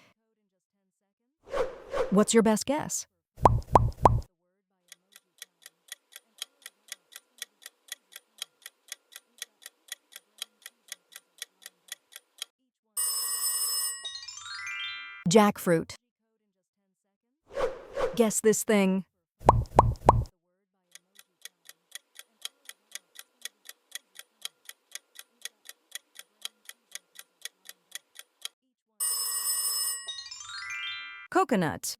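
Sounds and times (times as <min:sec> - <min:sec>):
countdown timer ticking: 0:03.5 - 0:04.3, 0:19.5 - 0:20.3.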